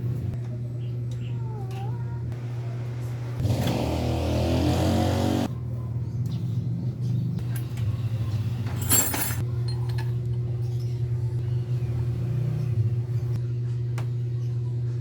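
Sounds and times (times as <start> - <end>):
light metallic clinks: 8.8 - 11.1.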